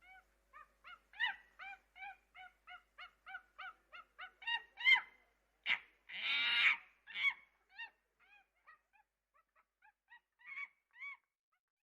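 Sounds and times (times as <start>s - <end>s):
monkey screeching and chirping: 5.7s - 8.4s.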